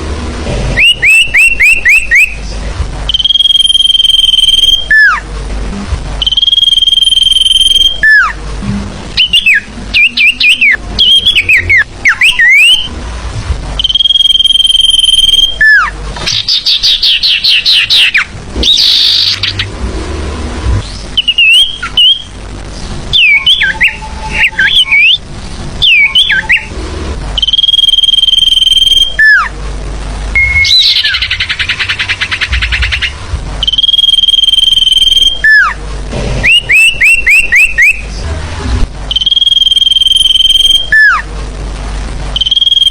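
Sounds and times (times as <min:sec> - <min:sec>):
bird whistles: 0:00.8 - 0:02.4, 0:03.1 - 0:05.2, 0:06.2 - 0:08.4, 0:09.2 - 0:12.9, 0:13.8 - 0:19.7, 0:20.9 - 0:22.3, 0:23.1 - 0:25.2, 0:25.8 - 0:26.7, 0:30.4 - 0:35.8, 0:36.4 - 0:38.1, 0:39.1 - 0:41.2
buzzy bird trills: 0:09.2 - 0:12.9, 0:13.8 - 0:19.8, 0:30.4 - 0:35.8.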